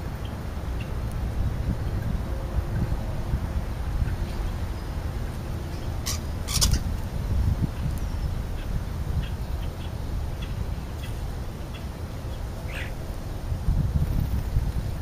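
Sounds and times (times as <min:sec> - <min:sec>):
bird harsh squawks: 0:06.0 - 0:06.8.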